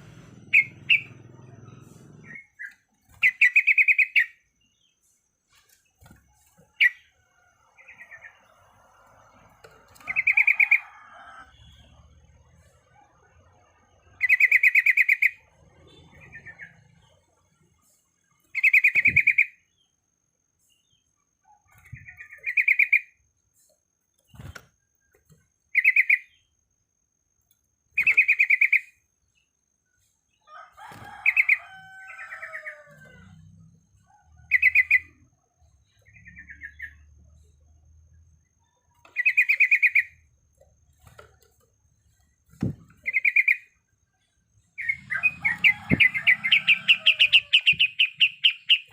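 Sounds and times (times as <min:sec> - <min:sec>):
bird singing trilled phrases: 0:02.2 - 0:04.9, 0:21.7 - 0:23.2, 0:25.7 - 0:26.5, 0:39.1 - 0:40.2, 0:42.6 - 0:43.8
soft bird chirps: 0:17.8 - 0:26.6.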